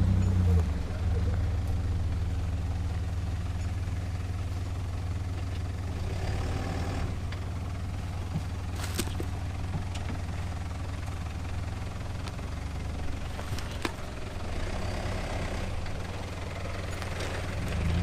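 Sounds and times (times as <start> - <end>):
engine droning at low revs: 0.0 - 18.0.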